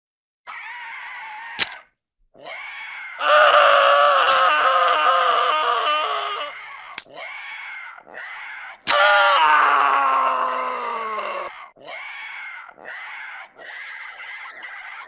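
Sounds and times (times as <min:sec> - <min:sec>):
person screaming in pain: 0:02.4 - 0:13.4
sharp crack: 0:08.8 - 0:09.0.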